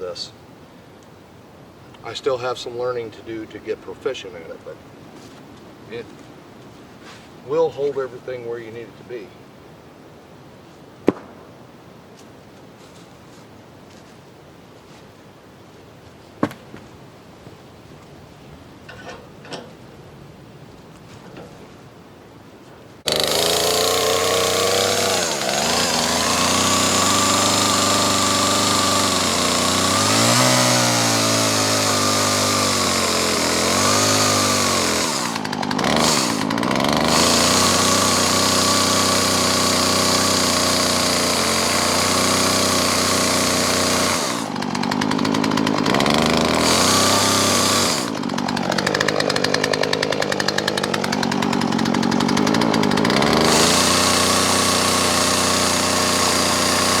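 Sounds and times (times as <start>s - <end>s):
chainsaw cutting wood: 23.1s - 57.0s.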